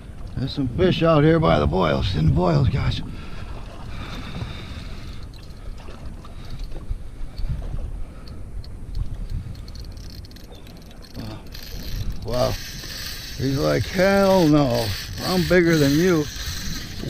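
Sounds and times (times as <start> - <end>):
wind rumbling on microphone: 0.0 - 17.0
water sloshing against boat hull: 1.5 - 17.0
faint ticks: 4.4 - 13.5.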